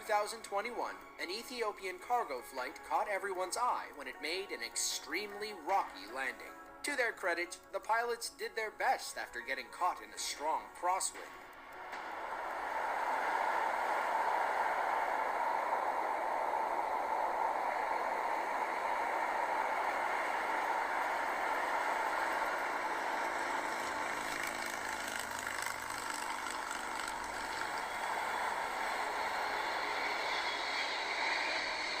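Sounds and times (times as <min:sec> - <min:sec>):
jet engine rush: 0:11.2 - 0:32.0.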